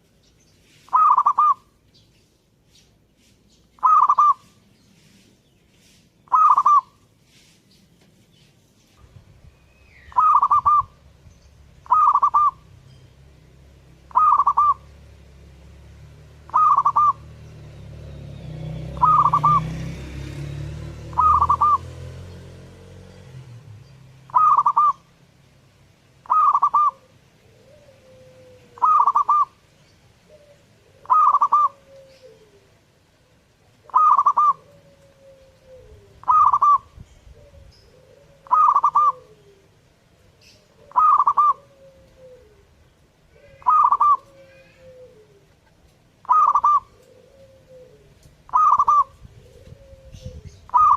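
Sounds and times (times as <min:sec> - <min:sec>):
dove cooing: 0:00.9 - 0:01.7, 0:03.8 - 0:04.6, 0:06.3 - 0:07.0, 0:10.1 - 0:11.1, 0:11.8 - 0:12.7, 0:14.0 - 0:15.1, 0:16.4 - 0:17.4, 0:19.0 - 0:19.7, 0:20.9 - 0:22.1, 0:24.3 - 0:25.1, 0:26.2 - 0:29.6, 0:30.2 - 0:50.9
lower falling bird call: 0:00.9 - 0:01.8, 0:03.6 - 0:04.7, 0:06.2 - 0:07.0, 0:09.7 - 0:11.1, 0:14.1 - 0:14.9, 0:16.5 - 0:17.3, 0:18.9 - 0:19.9, 0:21.1 - 0:22.2, 0:24.3 - 0:25.1, 0:26.2 - 0:29.6, 0:33.8 - 0:39.7, 0:40.4 - 0:42.6, 0:43.4 - 0:45.5, 0:46.3 - 0:50.9.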